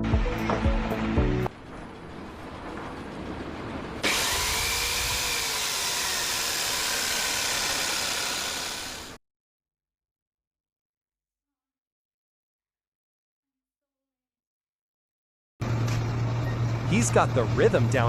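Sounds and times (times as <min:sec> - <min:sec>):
loud machine with whining motor: 0:01.6 - 0:09.2.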